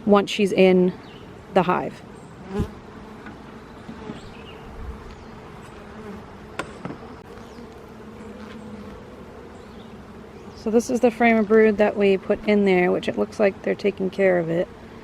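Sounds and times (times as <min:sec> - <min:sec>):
bees buzzing: 0:01.0 - 0:15.0.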